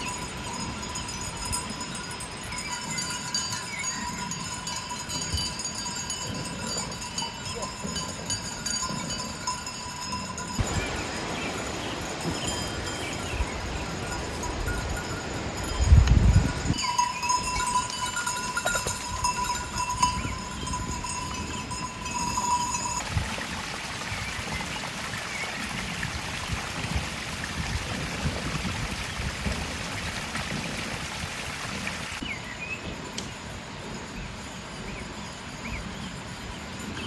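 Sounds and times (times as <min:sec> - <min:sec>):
livestock bells ringing: 0:00.0 - 0:37.0
flock of animals moving: 0:16.7 - 0:32.4.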